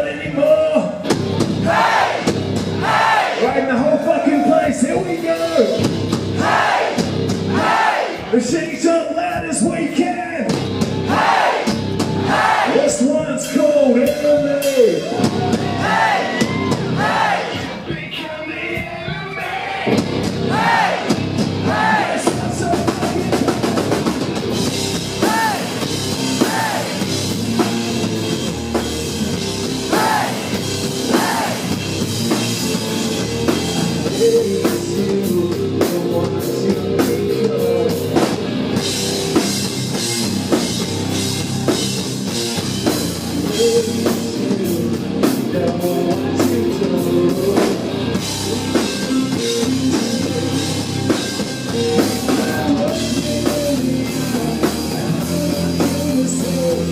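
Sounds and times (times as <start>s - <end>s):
bass guitar: 0.0s - 56.9s
drum kit: 0.0s - 56.9s
distorted electric guitars: 0.9s - 3.7s, 4.4s - 8.6s, 10.5s - 12.6s, 19.9s - 56.9s
person singing: 33.8s - 38.4s, 43.2s - 56.9s.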